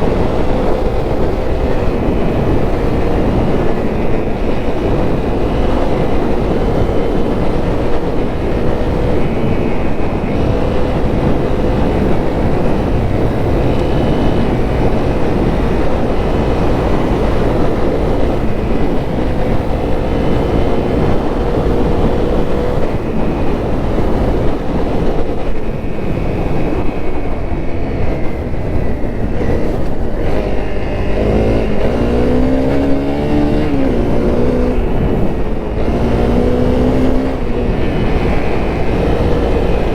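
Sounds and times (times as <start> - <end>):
motorcycle engine running: 0.0 - 39.9
steady rushing noise: 0.0 - 39.9.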